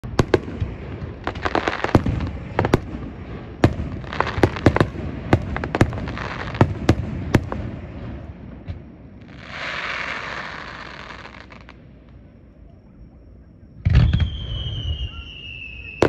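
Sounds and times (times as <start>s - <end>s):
fireworks bangs: 0.0s - 12.1s, 13.8s - 16.0s
fireworks crackling hiss: 0.0s - 12.2s.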